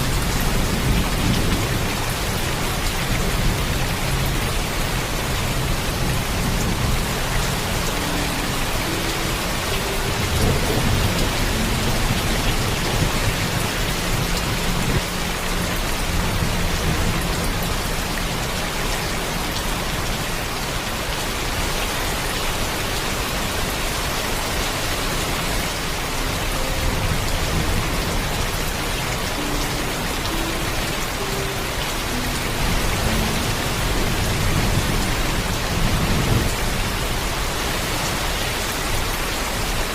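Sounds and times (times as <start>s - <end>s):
heavy rainfall: 0.0s - 39.9s
low thunder rumbling: 10.2s - 15.0s.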